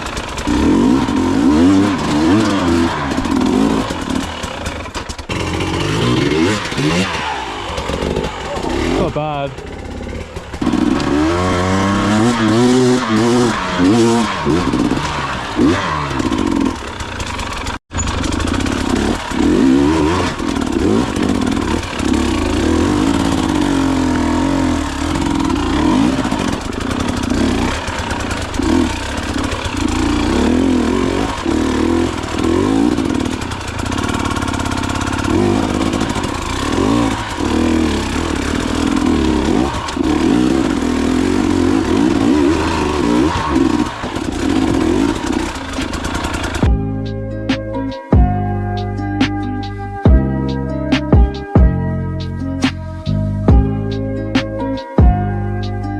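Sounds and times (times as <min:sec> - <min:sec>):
dirt bike engine revving: 0:00.0 - 0:48.3.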